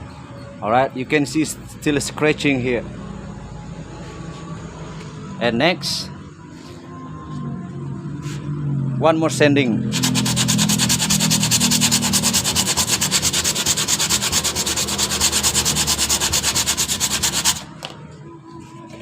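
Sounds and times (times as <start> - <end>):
sandpaper rubbing back and forth: 9.9 - 17.8.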